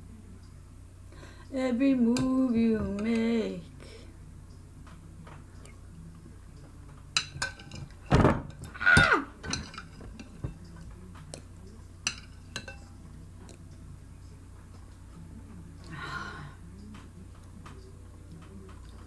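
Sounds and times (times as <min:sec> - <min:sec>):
spoon clinking against bowl: 0:07.2 - 0:13.6.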